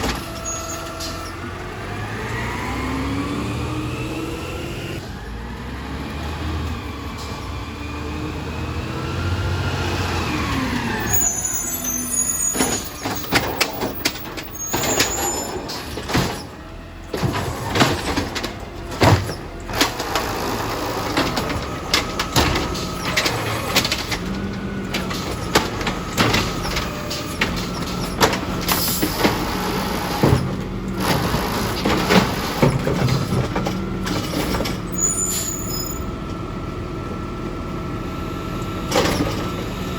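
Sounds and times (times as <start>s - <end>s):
garbage truck engine revving: 0.0s - 39.9s
recyclables clattering into hopper: 12.4s - 34.9s.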